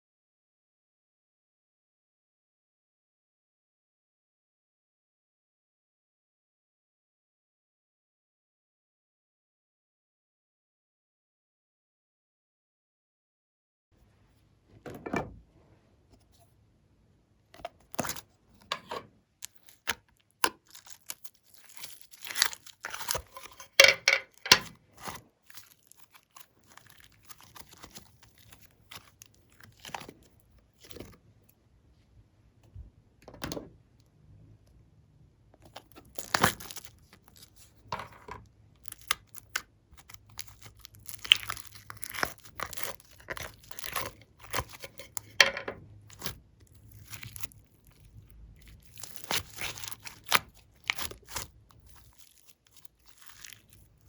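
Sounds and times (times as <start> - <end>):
sticky slime clicks and crackles: 19.4 - 23.8, 38.8 - 45.4, 46.1 - 53.9.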